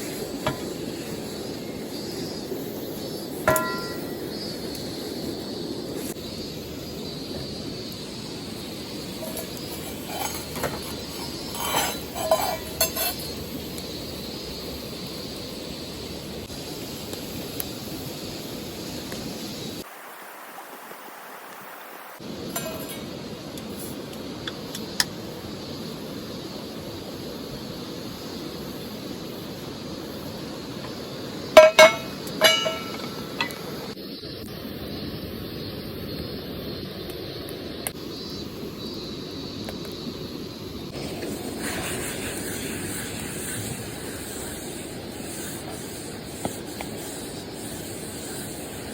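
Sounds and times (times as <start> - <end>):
steady hiss: 0.0 - 48.9
sharp ringing clinks: 3.5 - 4.2, 31.6 - 33.2.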